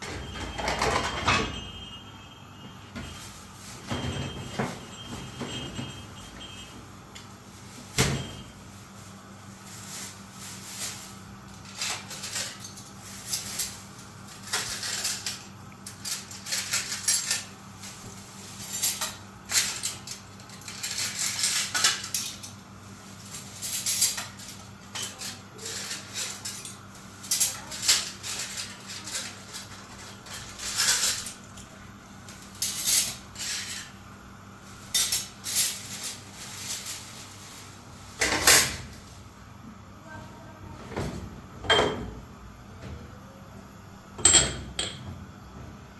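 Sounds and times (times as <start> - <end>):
dishes and cutlery clattering: 0.0 - 1.8, 23.4 - 31.7, 34.9 - 36.9, 41.0 - 42.2.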